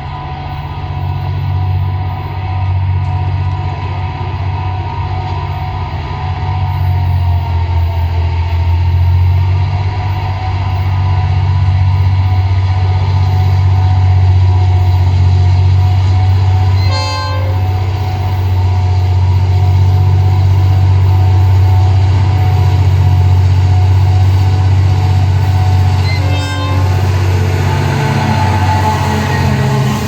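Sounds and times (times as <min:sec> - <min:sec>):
diesel locomotive engine drone: 0:00.0 - 0:30.0
locomotive horn toots: 0:16.6 - 0:18.0, 0:25.6 - 0:30.0.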